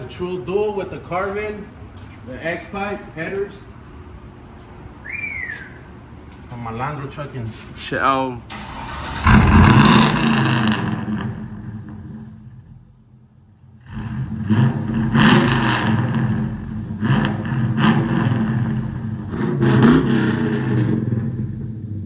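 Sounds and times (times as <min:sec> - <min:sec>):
pickup truck engine revving: 0:08.5 - 0:12.8, 0:13.8 - 0:22.0.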